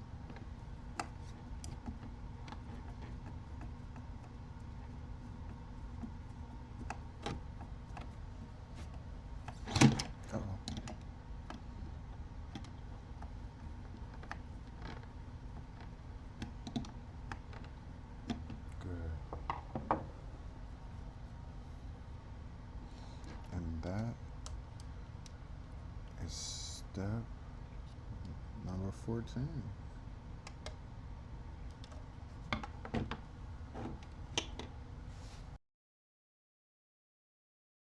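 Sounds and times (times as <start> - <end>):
low steady hum: 0.0 - 35.6
plastic parts clicking and tapping: 9.4 - 11.6.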